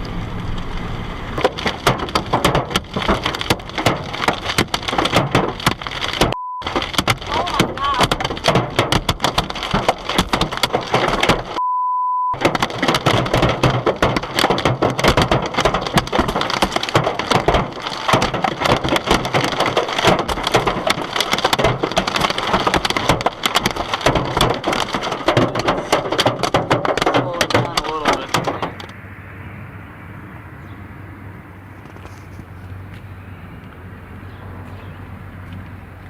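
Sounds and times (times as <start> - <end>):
wind and rain battering microphone: 0.0 - 11.6, 12.4 - 36.0
censor beep: 6.4 - 6.7, 11.6 - 12.4.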